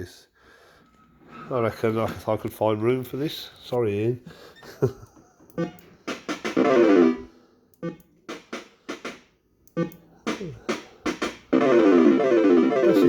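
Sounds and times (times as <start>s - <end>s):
fruit machine electronic sound effects: 6.5s - 8.1s, 9.7s - 13.0s.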